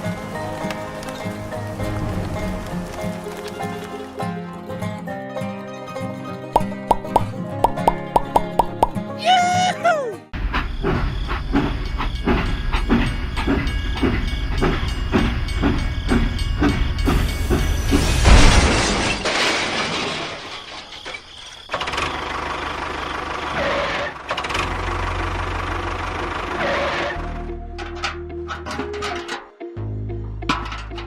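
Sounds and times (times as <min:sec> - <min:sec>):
rhythmic knocking: 0:11.5 - 0:17.9.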